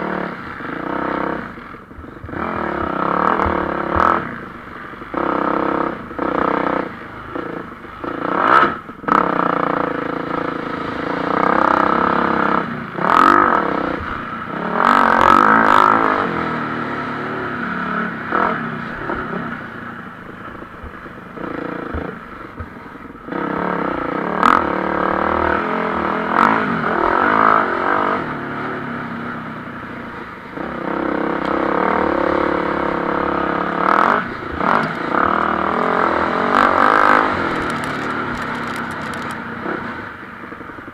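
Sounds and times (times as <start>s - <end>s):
motocross bike engines revving: 0.0s - 40.9s
sharp clacks: 37.4s - 39.4s.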